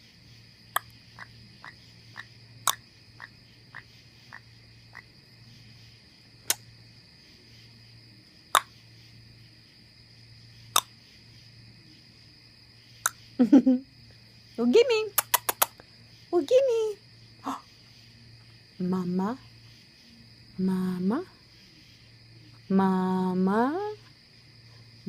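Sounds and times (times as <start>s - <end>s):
parrot clicking: 15.2s - 15.8s.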